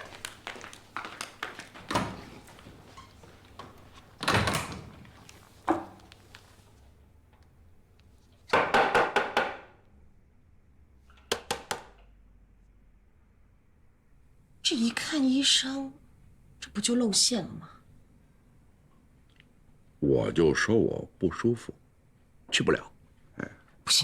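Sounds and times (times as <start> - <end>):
knocks on door: 8.5 - 9.7.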